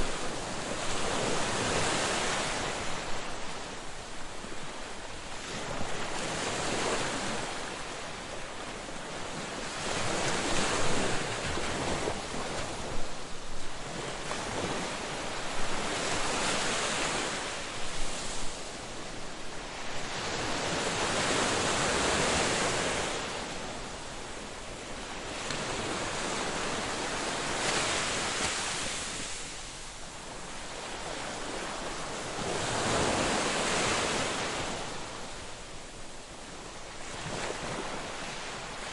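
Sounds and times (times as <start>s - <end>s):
ocean waves breaking on beach: 0.0s - 38.9s.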